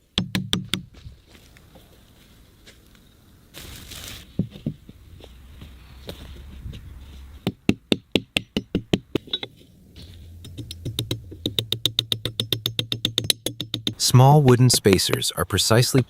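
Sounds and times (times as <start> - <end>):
hand tool knocking on wood: 7.4 - 9.2, 10.4 - 14.0.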